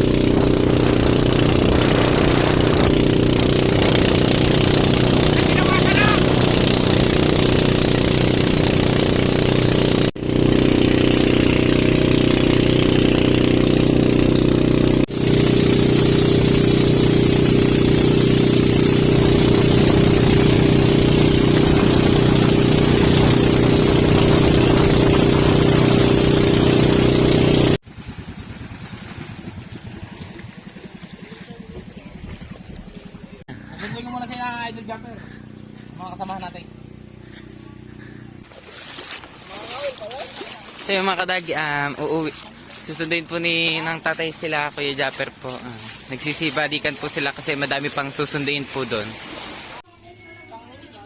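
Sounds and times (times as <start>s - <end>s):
wind and spray noise: 0.0s - 9.8s, 38.4s - 49.8s
jet ski engine running: 0.0s - 49.9s.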